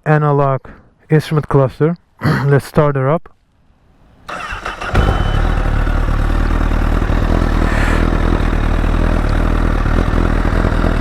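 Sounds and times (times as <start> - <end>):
motorcycle engine idling: 4.3 - 11.0.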